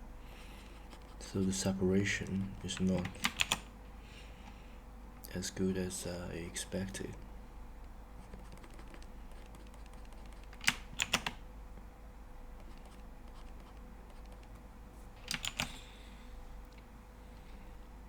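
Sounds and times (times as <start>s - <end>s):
faint electrical hum: 0.0s - 18.0s
keyboard keys clicking: 2.2s - 3.7s, 7.1s - 11.4s, 12.6s - 15.9s.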